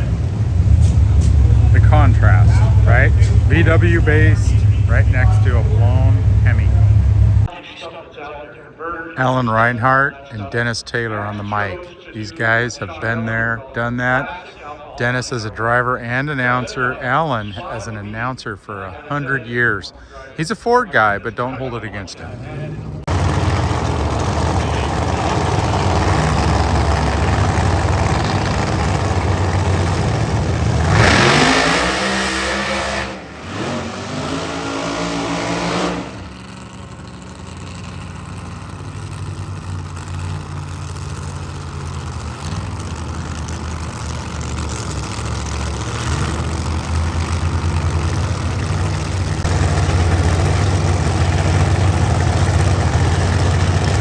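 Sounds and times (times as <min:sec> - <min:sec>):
racing car engine revving: 0:00.0 - 0:07.5, 0:22.3 - 0:54.0.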